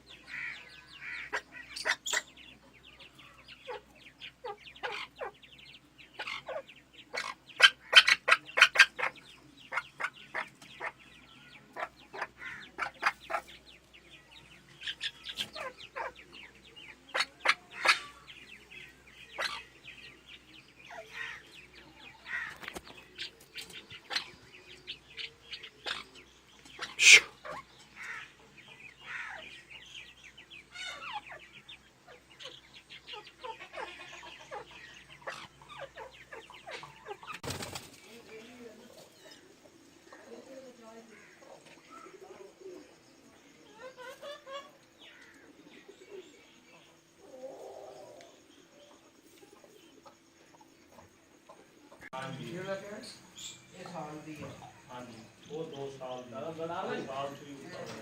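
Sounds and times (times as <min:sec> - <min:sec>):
fowl clucking: 0:00.0 - 0:02.5, 0:06.2 - 0:11.0, 0:11.6 - 0:13.6, 0:14.9 - 0:18.3, 0:19.3 - 0:19.7, 0:25.2 - 0:29.5, 0:32.0 - 0:37.4
bird chirps: 0:00.0 - 0:58.0.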